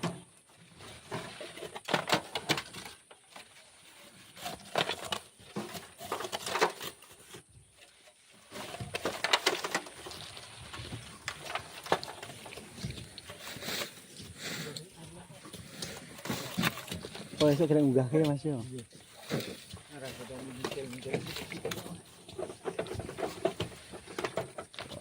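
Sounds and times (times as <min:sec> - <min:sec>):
sand being shovelled: 0:13.3 - 0:15.0.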